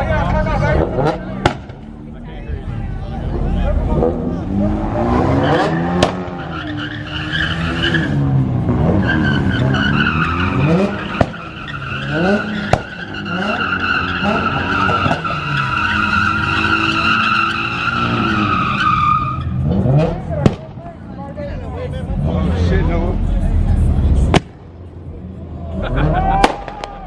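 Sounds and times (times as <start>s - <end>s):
car tyres squealing: 0.0s - 20.7s
sharp bangs: 1.3s - 1.9s, 10.7s - 13.5s
engine revving: 3.2s - 20.6s.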